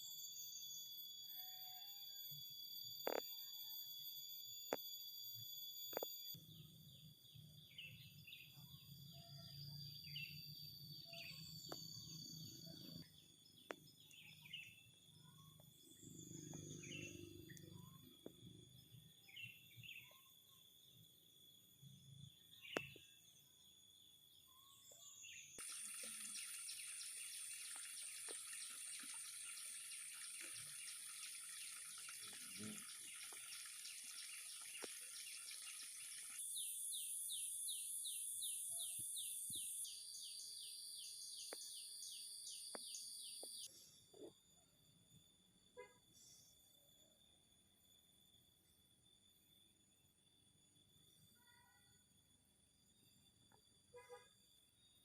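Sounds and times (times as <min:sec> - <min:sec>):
high-pitched insect buzz: 0:00.0 - 0:06.6, 0:07.6 - 0:44.4
bird chirps: 0:05.9 - 0:21.0, 0:22.1 - 0:23.6, 0:24.3 - 0:44.3.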